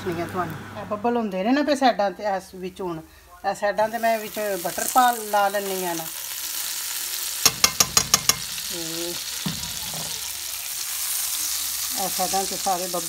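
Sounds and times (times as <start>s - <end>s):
food sizzling in a pan: 1.6s - 13.0s
fork tapping a pan: 7.4s - 8.5s.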